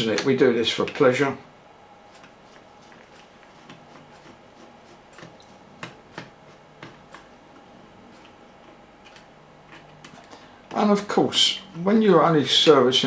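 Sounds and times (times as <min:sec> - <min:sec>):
small parts and wires clicking: 0:08.1 - 0:10.8.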